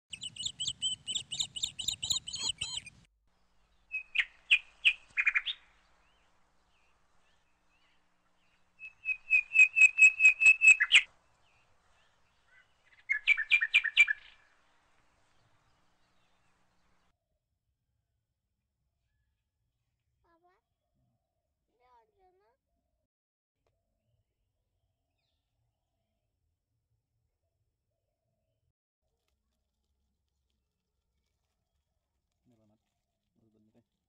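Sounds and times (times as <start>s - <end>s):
bird whistling song: 0.1s - 3.0s, 3.8s - 5.7s, 8.8s - 11.1s, 12.5s - 14.4s.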